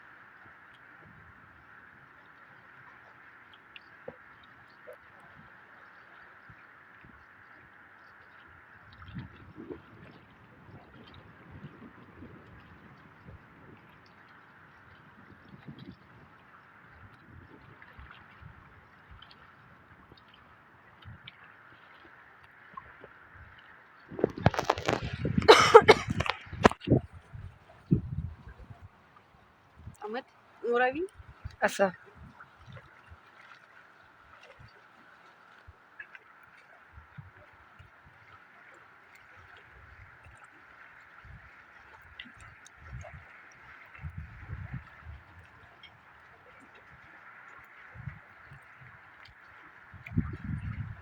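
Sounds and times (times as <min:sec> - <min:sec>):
shallow water gurgling: 0:00.0 - 0:51.0
ducks dabbling in water: 0:08.1 - 0:51.0
splashing and knocks: 0:24.1 - 0:27.1.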